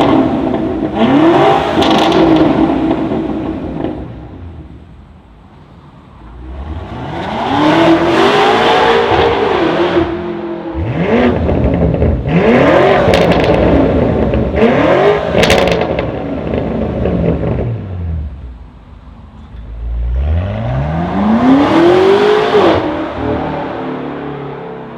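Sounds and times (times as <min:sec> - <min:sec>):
car engine revving: 0:00.0 - 0:04.6, 0:06.3 - 0:18.6, 0:19.8 - 0:24.8
exhaust pops: 0:13.0 - 0:14.6.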